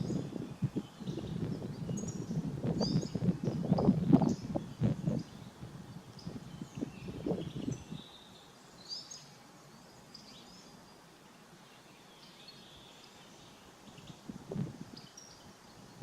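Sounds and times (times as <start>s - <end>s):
faint outdoor hiss: 0.0s - 16.0s
small birds chirping: 0.0s - 16.0s.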